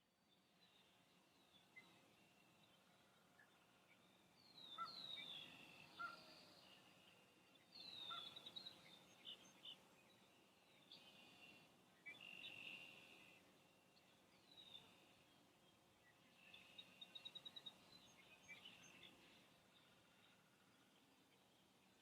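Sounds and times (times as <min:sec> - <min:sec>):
wild birds calling: 0:04.6 - 0:07.0, 0:07.8 - 0:09.8.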